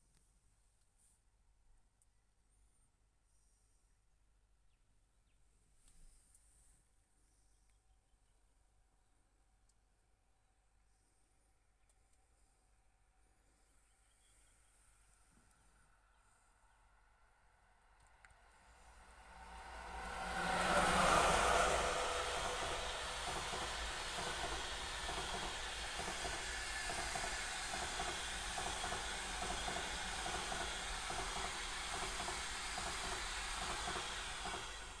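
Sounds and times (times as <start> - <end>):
passenger train passing: 18.1 - 35.0.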